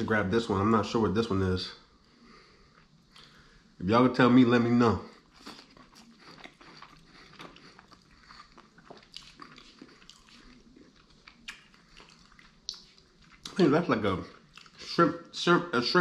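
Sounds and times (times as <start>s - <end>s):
chewing sushi with wet clicks: 5.4s - 13.6s, 14.3s - 14.8s.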